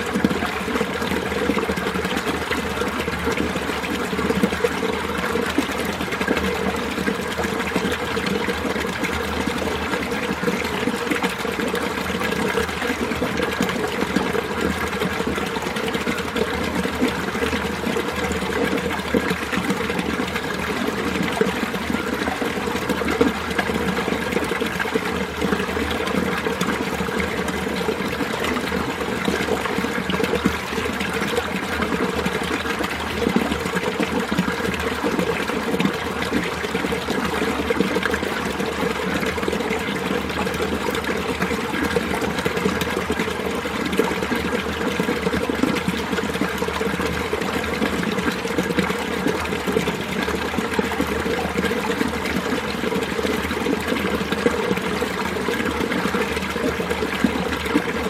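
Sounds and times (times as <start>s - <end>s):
stream babbling over rocks: 0.0s - 58.0s.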